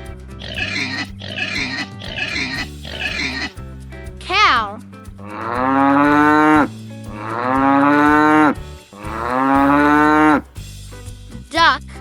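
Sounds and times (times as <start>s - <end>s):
cow mooing: 5.2s - 10.5s.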